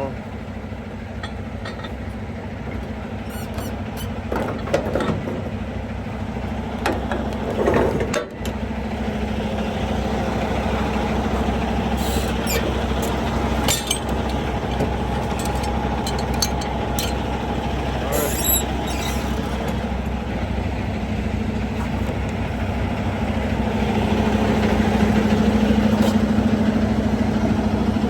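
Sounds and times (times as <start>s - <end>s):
diesel truck engine running: 0.0s - 28.0s
sharp metallic clicks and knocks: 12.3s - 17.5s.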